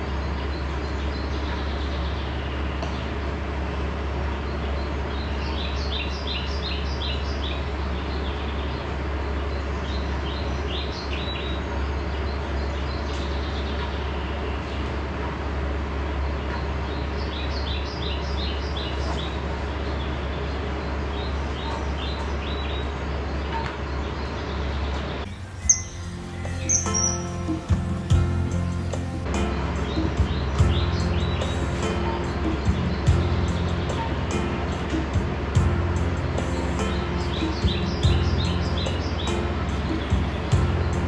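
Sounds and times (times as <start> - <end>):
birds chirping: 16.2 - 41.0
low hum: 25.2 - 41.0.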